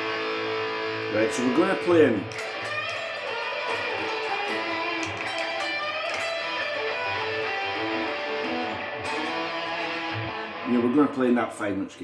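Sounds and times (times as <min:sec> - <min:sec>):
electric guitar lead line: 0:00.0 - 0:11.5.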